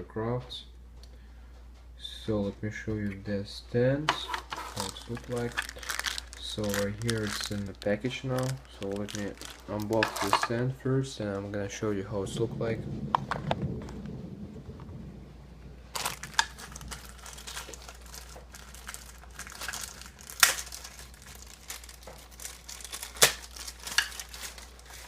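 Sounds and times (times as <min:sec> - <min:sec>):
packaging crinkling: 0:04.1 - 0:10.5, 0:15.9 - 0:25.0.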